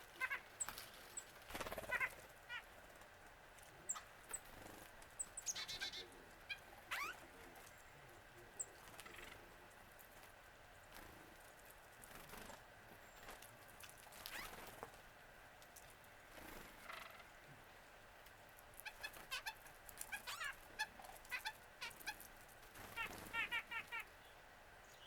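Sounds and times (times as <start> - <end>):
birds slurred calls: 0.0 - 3.1, 3.7 - 10.0, 14.1 - 14.9, 16.3 - 17.4, 18.7 - 25.0.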